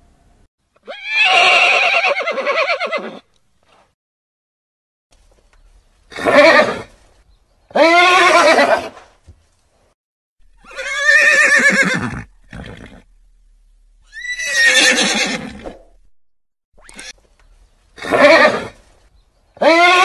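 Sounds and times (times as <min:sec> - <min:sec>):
horse whinnying: 0:00.8 - 0:03.3, 0:06.1 - 0:06.9, 0:07.7 - 0:09.0, 0:10.6 - 0:13.1, 0:14.0 - 0:16.0, 0:16.8 - 0:17.1, 0:18.0 - 0:18.8, 0:19.6 - 0:20.0.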